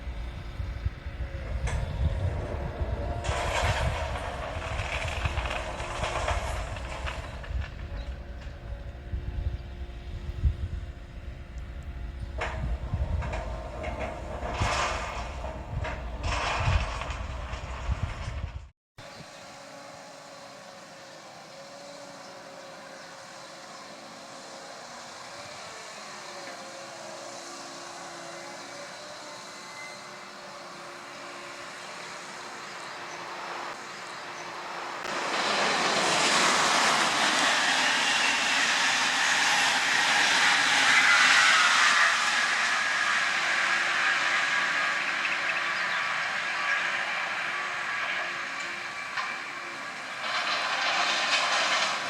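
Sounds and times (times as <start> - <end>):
train rumbling and clattering on track: 0.0 - 18.7, 34.9 - 52.0
machine hum with faint whine: 0.0 - 52.0.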